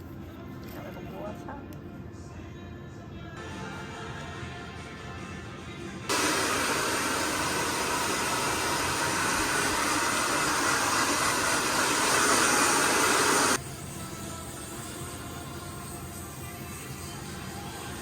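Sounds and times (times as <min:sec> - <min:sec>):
hair dryer blowing: 0:06.1 - 0:13.6.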